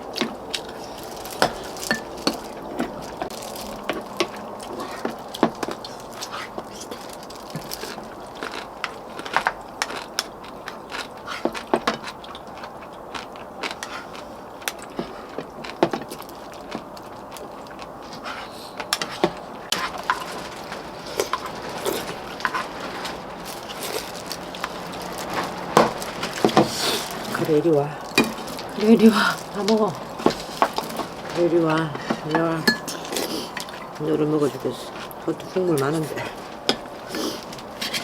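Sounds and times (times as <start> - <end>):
chewing and gnawing bones: 0.0 - 38.0
utensils clicking against bowls: 0.2 - 8.0, 28.1 - 36.0.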